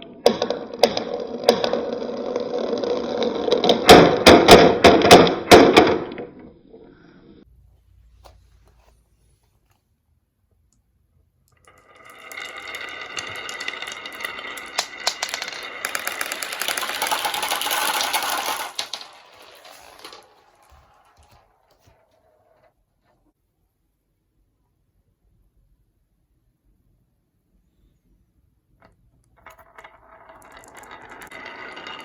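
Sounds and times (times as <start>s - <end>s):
marbles rattling down wooden ramp: 0.0s - 6.2s, 11.6s - 22.8s, 28.8s - 32.0s.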